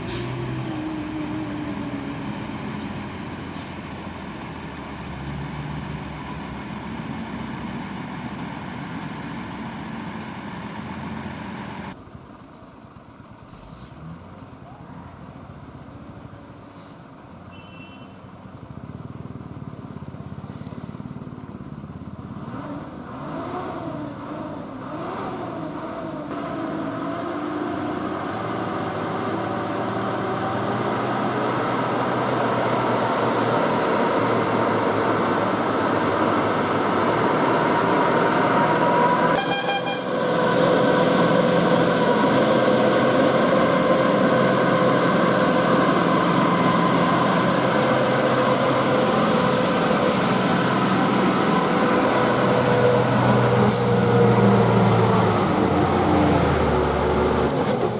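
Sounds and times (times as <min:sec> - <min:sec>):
lorry diesel engine drone: 0:00.0 - 0:17.4, 0:18.4 - 0:57.9.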